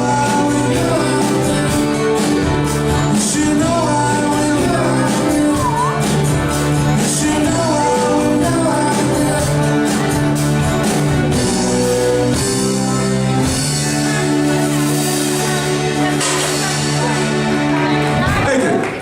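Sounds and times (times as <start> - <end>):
person singing: 0.0 - 12.4
live rock band: 0.0 - 19.0.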